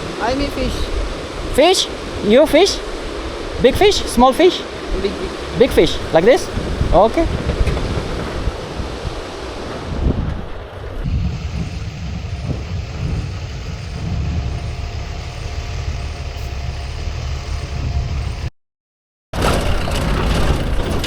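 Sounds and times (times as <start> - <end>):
vehicle engine running: 11.1 - 18.5.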